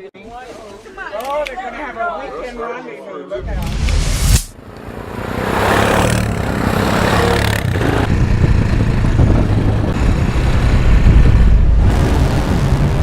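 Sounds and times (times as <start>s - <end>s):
vehicle engine rumbling: 3.4s - 13.0s.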